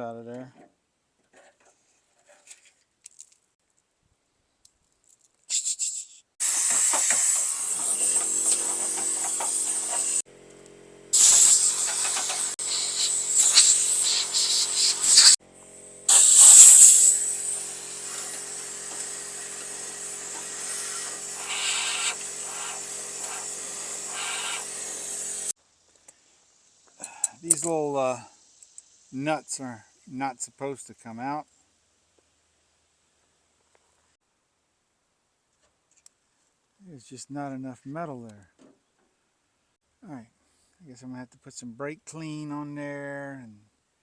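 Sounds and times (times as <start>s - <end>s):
compressed air hissing from blowgun: 5.5s - 10.2s, 11.2s - 15.4s, 16.1s - 25.5s
steady motor hum: 7.7s - 16.3s, 17.1s - 25.5s.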